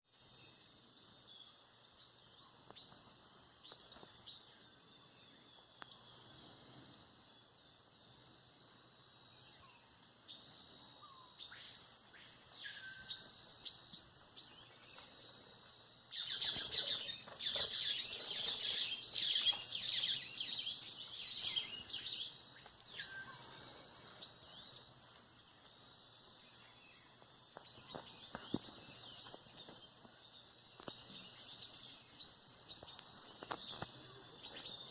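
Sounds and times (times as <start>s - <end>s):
birds calling and singing: 7.9s - 34.9s.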